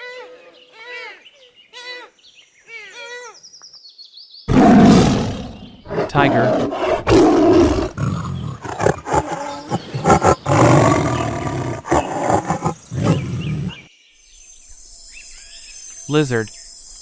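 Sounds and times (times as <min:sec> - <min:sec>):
tiger roaring and growling: 0:04.5 - 0:13.8.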